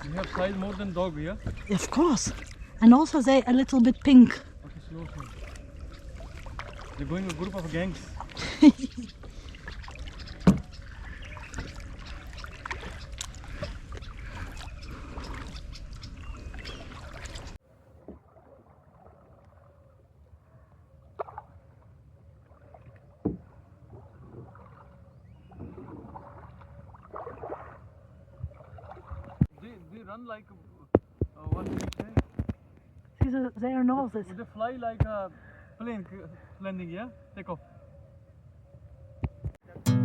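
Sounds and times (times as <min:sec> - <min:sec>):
paddle splashing in water: 0:00.0 - 0:20.2, 0:21.0 - 0:29.7
paddle knocking against kayak: 0:01.3 - 0:01.7, 0:09.0 - 0:15.6, 0:23.1 - 0:24.8.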